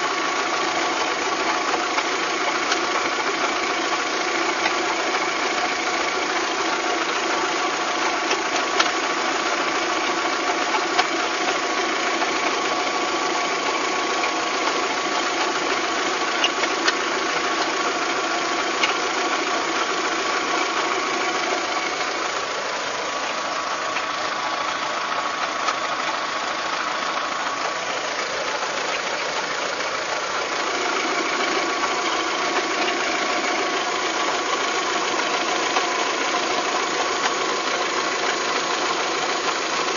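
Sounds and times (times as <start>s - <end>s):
car engine idling with whine: 0.0s - 39.9s
engine knocking rattle: 0.0s - 39.9s
sharp engine ticks: 23.9s - 24.2s.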